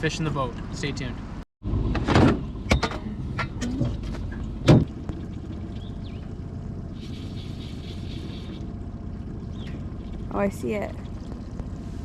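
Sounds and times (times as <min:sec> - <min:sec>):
boat motor running: 0:00.0 - 0:12.0
knocks and sharp thump: 0:01.9 - 0:04.9.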